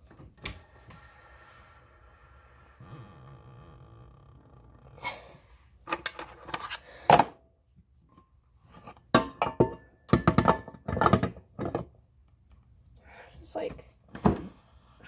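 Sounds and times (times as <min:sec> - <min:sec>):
kitchen utensils clattering: 0:09.2 - 0:11.9.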